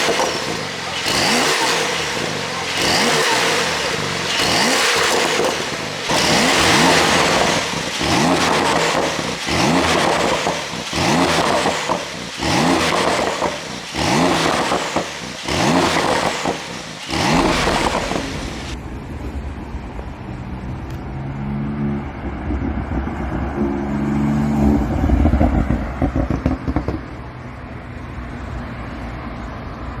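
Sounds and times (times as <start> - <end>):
car engine rev blips: 0.0 - 18.8.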